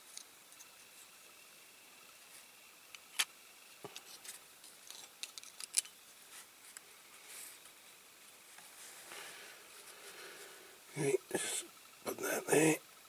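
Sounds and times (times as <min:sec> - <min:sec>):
toy parts clicking and tapping: 0:04.8 - 0:06.0.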